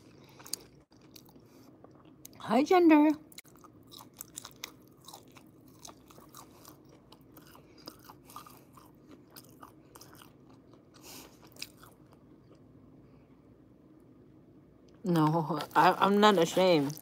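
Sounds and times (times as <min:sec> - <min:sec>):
person chewing food: 0:00.0 - 0:02.4, 0:03.3 - 0:12.9.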